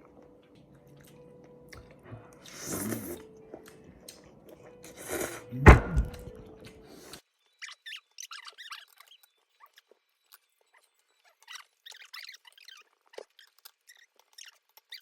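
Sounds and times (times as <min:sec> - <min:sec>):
quiet chewing: 0:00.0 - 0:07.2, 0:08.2 - 0:15.0
dull thud: 0:05.6 - 0:06.4.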